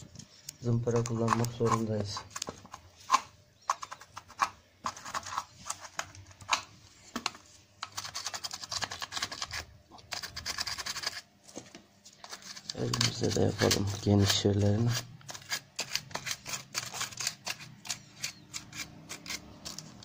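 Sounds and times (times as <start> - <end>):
sandpaper rasping on metal: 12.4 - 19.8.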